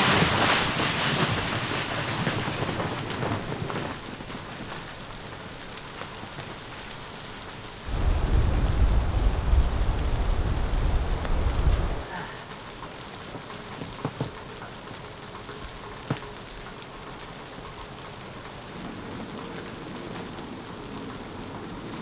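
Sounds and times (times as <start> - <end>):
hiss of falling rain: 0.0 - 22.0
deep thunder rumble: 7.9 - 12.0.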